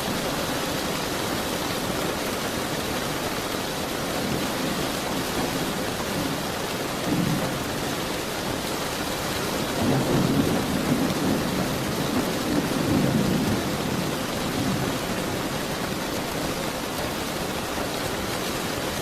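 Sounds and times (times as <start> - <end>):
heavy rain hissing: 0.0 - 19.0
distant thunder rumble: 5.2 - 17.9.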